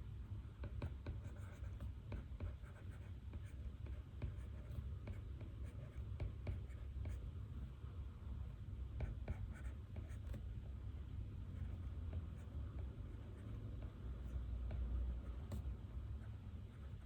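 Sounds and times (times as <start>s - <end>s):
steady low hum: 0.0s - 17.0s
pen writing on paper: 0.6s - 7.2s, 9.0s - 10.4s, 11.6s - 17.0s.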